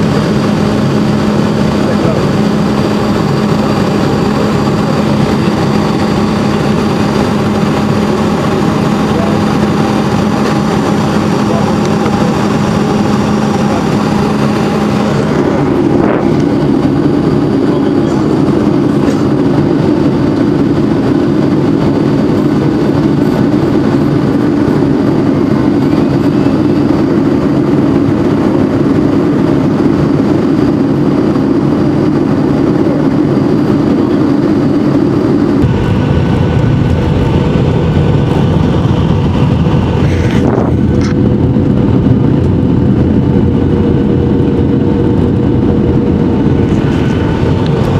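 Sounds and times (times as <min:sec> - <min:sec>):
airplane cabin engine rumble: 0:00.0 - 0:47.9
rushing air: 0:00.0 - 0:47.9
steady hum: 0:00.0 - 0:47.9.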